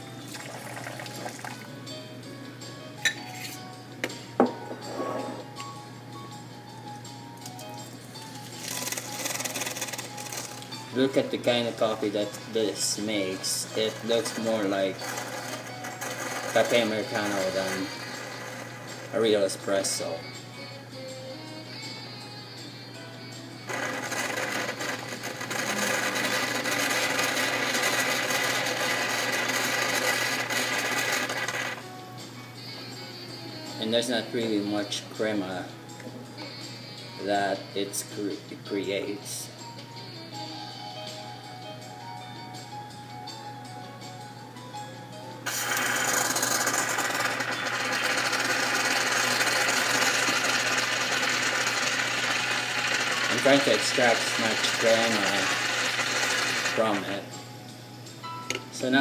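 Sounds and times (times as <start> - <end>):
espresso machine hissing: 0.3 - 1.7, 8.3 - 20.3, 23.5 - 31.9, 45.4 - 57.4.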